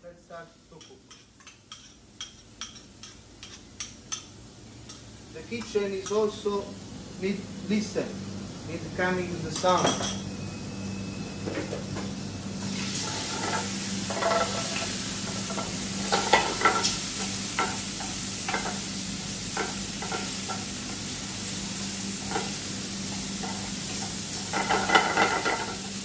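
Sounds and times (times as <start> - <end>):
calamari sizzling in a frying pan: 12.2 - 26.0.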